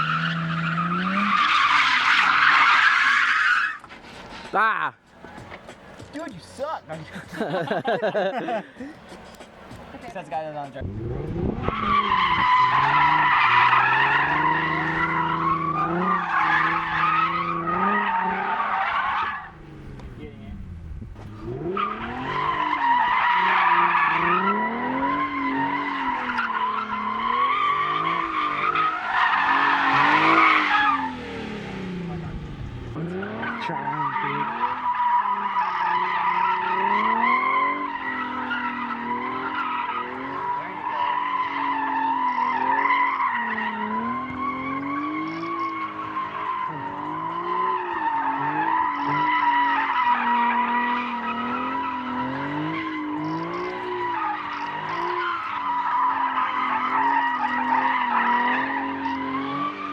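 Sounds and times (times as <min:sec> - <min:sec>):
car engine at high revs: 0:00.0 - 0:03.2, 0:05.2 - 0:59.9
tyres squealing: 0:11.6 - 0:19.6, 0:21.6 - 0:31.3, 0:32.9 - 0:59.9.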